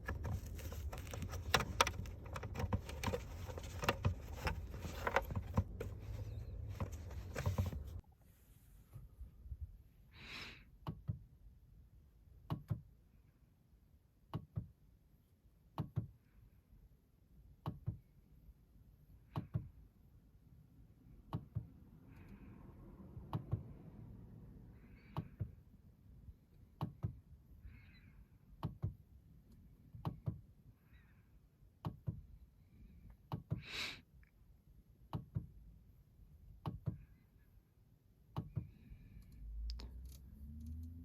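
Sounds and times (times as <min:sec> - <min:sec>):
soft rustle: 0:00.0 - 0:09.4.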